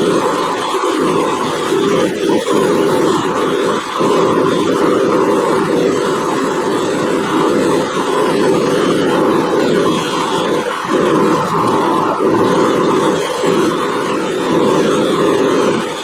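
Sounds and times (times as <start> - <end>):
polishing wheel whirring: 4.9 - 16.0.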